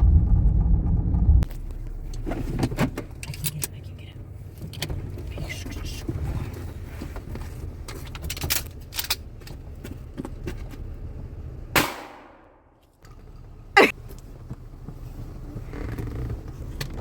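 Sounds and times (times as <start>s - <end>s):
vehicle engine idling: 0.0s - 17.0s
shotgun shot: 11.8s - 12.6s.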